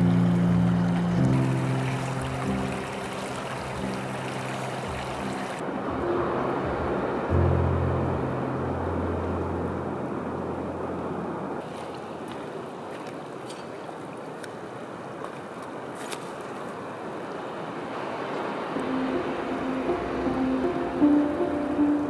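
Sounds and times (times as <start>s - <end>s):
river water flowing: 0.0s - 22.0s
low hum: 5.8s - 11.6s.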